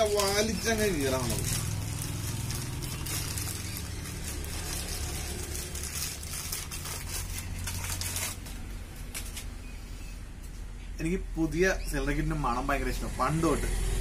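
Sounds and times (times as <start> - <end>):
plastic packaging crackling: 0.0 - 9.6.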